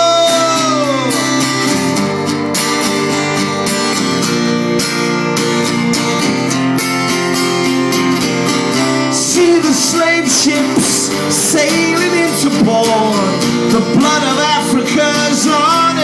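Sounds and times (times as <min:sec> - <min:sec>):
live rock band playing: 0:00.0 - 0:16.0
strummed acoustic guitar chords: 0:00.0 - 0:16.0.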